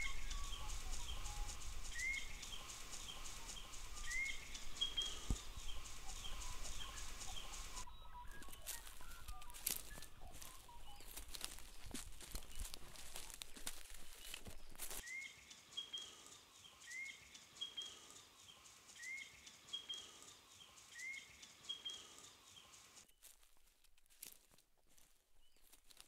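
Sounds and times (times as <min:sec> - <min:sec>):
bird calling with rising notes: 0:00.0 - 0:11.8, 0:15.0 - 0:22.8
footsteps on dry bush ground: 0:00.0 - 0:15.0, 0:23.0 - 0:26.0.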